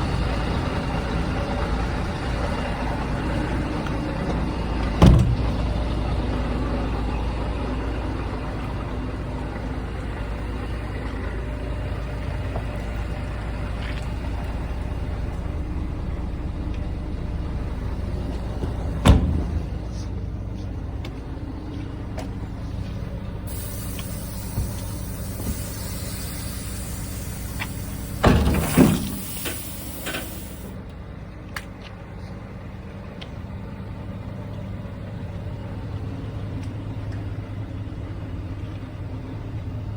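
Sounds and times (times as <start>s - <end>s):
truck diesel engine running: 0.0s - 39.9s
air brake hisses: 23.5s - 30.8s
sharp burst of air: 23.5s - 30.8s.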